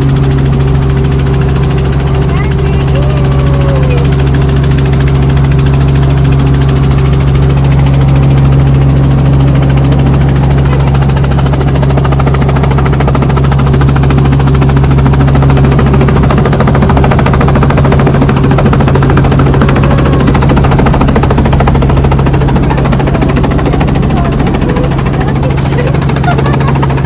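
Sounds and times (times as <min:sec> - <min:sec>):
helicopter engine and rotor: 0:00.0 - 0:27.0.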